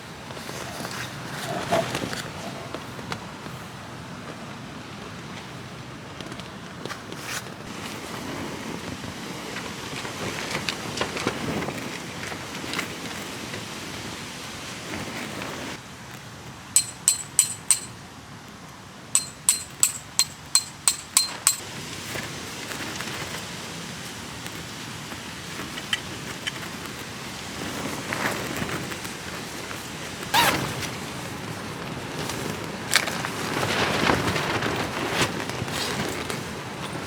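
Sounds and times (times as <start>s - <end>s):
hammer striking metal tent peg: 16.8s - 18.0s, 19.2s - 21.6s.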